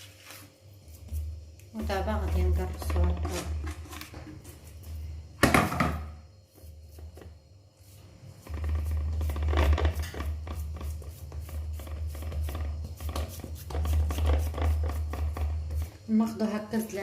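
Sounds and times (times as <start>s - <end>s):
hands patting dough: 6.5s - 16.0s.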